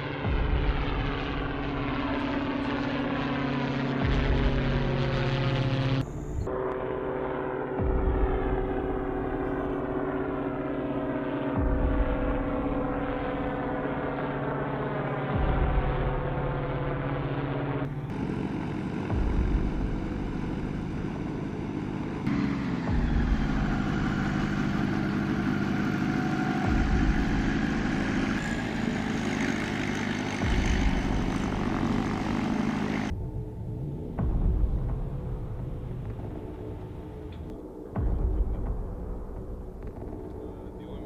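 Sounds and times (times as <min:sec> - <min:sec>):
aircraft engine and rotor drone: 0:00.0 - 0:41.0
deep low boom: 0:00.2 - 0:02.2, 0:19.1 - 0:21.1, 0:33.1 - 0:40.4.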